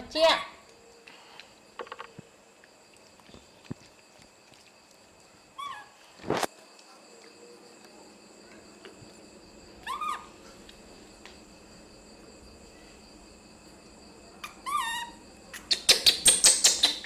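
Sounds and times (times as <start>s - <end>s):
insects chirring: 0.0s - 17.0s
baby monkey squeaky calls: 5.6s - 5.9s, 9.8s - 10.4s, 14.4s - 17.0s.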